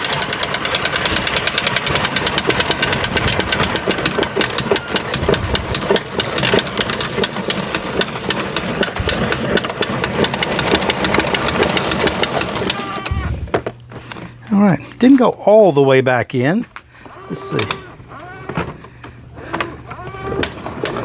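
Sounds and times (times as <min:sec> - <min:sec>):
hose reel clicking: 0:00.0 - 0:13.2.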